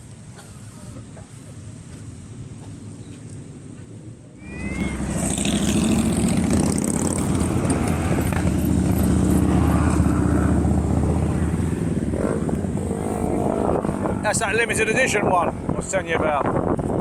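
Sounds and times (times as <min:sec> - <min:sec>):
motorcycle engine running: 0:04.8 - 0:14.8.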